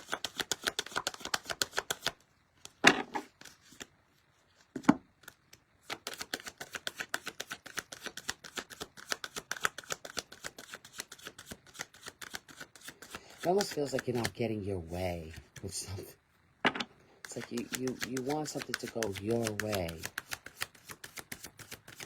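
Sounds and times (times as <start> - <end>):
cards being shuffled: 0.0 - 15.8, 17.2 - 22.0.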